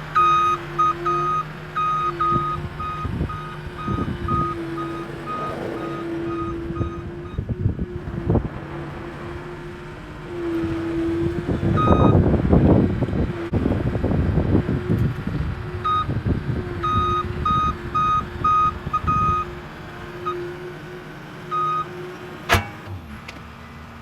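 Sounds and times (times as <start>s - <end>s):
machine engine running: 0.0s - 20.8s
reversing alarm beeping: 0.1s - 8.5s, 9.1s - 12.3s, 15.8s - 16.1s, 16.8s - 19.6s, 21.5s - 21.9s.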